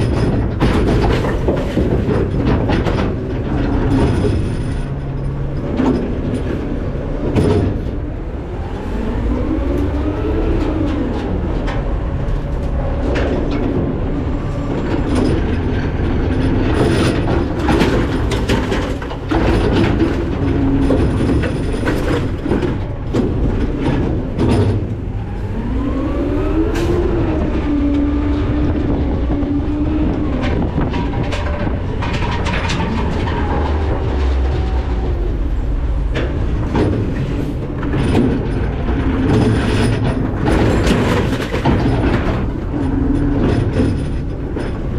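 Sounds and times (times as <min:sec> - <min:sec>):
diesel engine revving: 0:00.0 - 0:44.9
metal clanks and bangs: 0:00.0 - 0:44.9.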